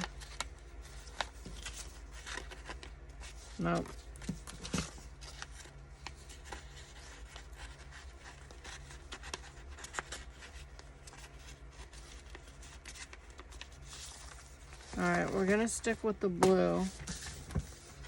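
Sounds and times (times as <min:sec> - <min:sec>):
paper rustling: 0:00.0 - 0:18.0
steady low hum: 0:00.0 - 0:18.0.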